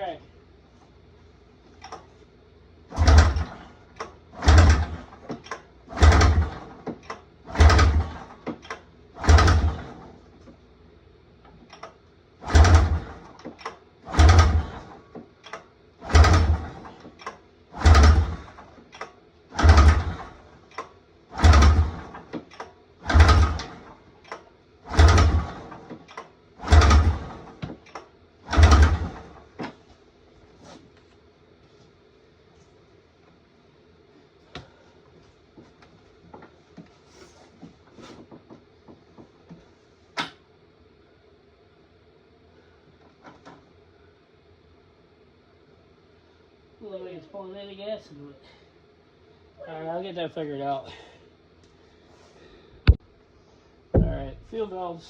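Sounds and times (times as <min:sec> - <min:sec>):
recoil starter pulls: 0:01.7 - 0:02.1, 0:02.9 - 0:10.6, 0:11.4 - 0:30.0, 0:36.2 - 0:40.5, 0:54.0 - 0:54.9
engine turning over: 0:02.9 - 0:10.6, 0:11.5 - 0:29.8, 0:54.0 - 0:54.7.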